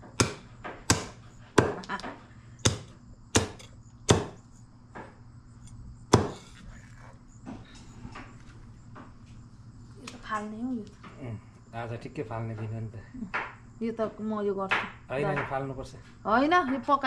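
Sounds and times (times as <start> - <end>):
blade chopping raw chicken: 0.0 - 1.8, 2.6 - 4.4, 6.1 - 6.5.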